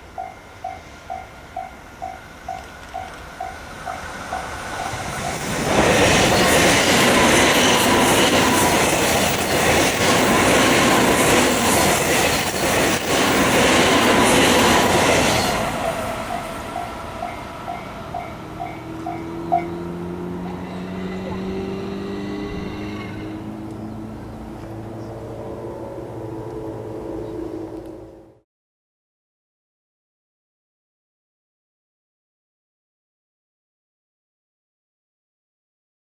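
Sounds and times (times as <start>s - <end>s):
train passing loudly: 0.0s - 27.8s
wheels clacking over rail joints: 1.1s - 19.8s.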